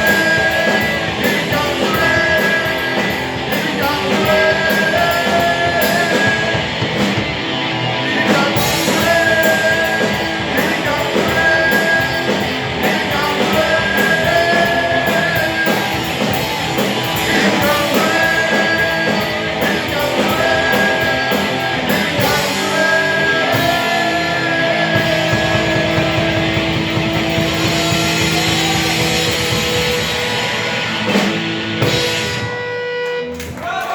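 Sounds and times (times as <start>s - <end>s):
bass guitar: 0.0s - 33.9s
drums: 0.0s - 33.9s
electric guitars: 0.0s - 33.9s.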